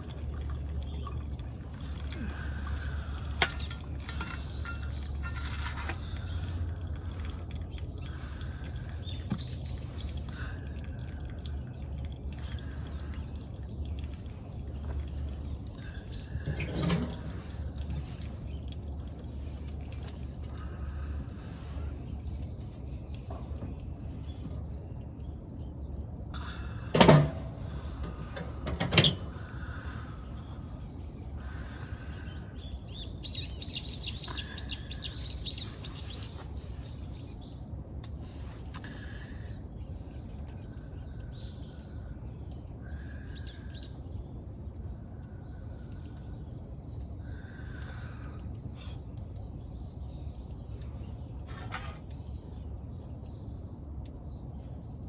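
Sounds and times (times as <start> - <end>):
low background rumble: 0.0 - 55.0
bird chirp: 1.8 - 26.9, 29.2 - 44.2.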